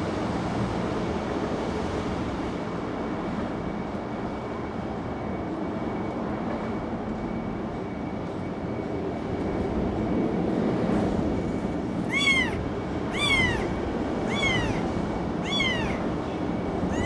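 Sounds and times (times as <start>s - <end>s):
kitten meowing: 12.0s - 16.1s.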